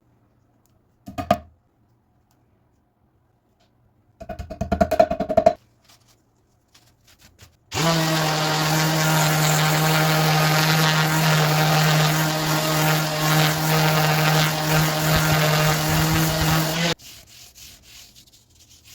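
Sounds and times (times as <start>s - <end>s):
electric power tool whirring: 7.7s - 17.0s.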